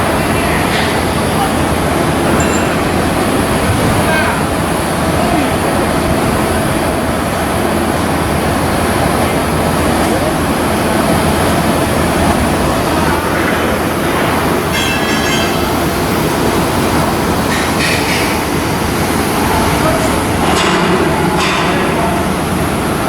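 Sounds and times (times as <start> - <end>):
loud machinery noise: 0.0 - 23.0.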